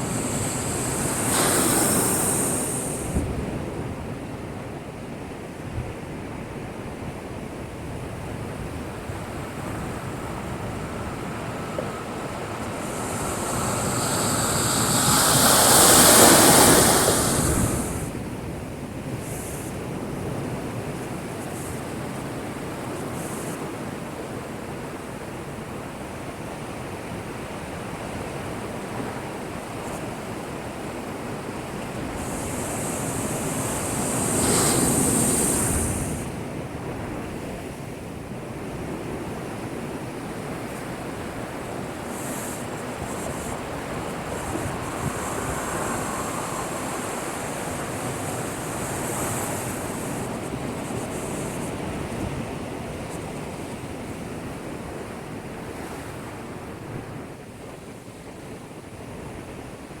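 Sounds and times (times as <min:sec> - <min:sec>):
waves crashing against seawall: 0:00.0 - 0:03.6, 0:07.9 - 0:18.6, 0:31.4 - 0:36.6, 0:40.4 - 0:54.2
steady surf: 0:00.0 - 0:03.8, 0:07.0 - 0:24.1, 0:28.9 - 0:37.9, 0:38.8 - 0:56.9.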